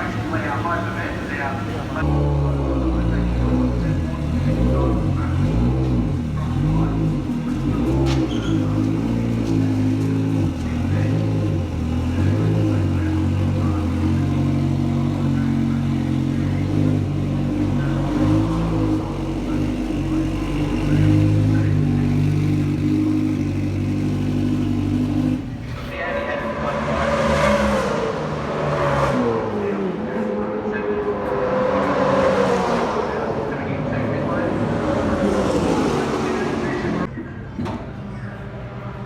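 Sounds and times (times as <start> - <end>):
race car engine running hard: 0.0 - 39.0.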